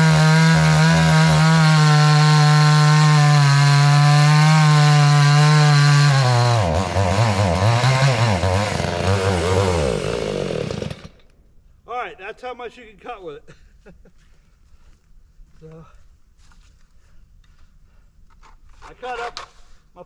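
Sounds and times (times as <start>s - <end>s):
chainsaw running at high revs: 0.0s - 11.2s.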